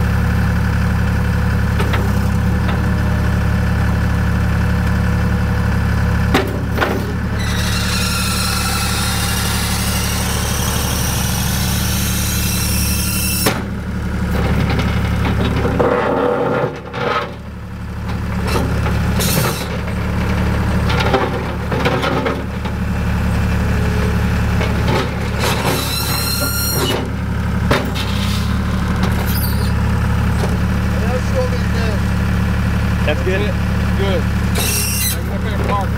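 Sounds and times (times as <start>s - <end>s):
diesel engine running: 0.0s - 35.9s
high squeals and squeaks: 7.4s - 13.5s, 25.4s - 27.1s, 29.2s - 29.9s, 34.5s - 35.5s.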